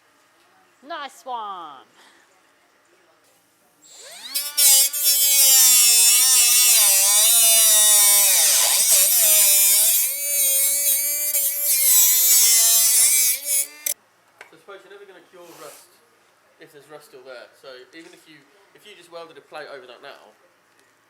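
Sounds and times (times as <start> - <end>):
angle grinder on steel: 3.9 - 14.0.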